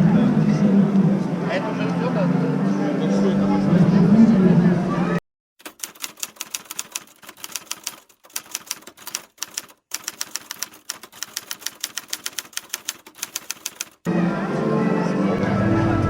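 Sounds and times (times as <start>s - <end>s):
typewriter key clicks: 5.6s - 14.0s.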